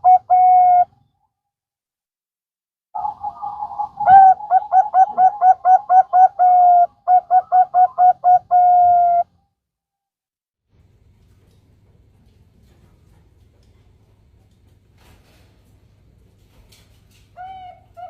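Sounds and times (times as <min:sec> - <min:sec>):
dove cooing: 0:00.0 - 0:00.9, 0:03.0 - 0:09.3.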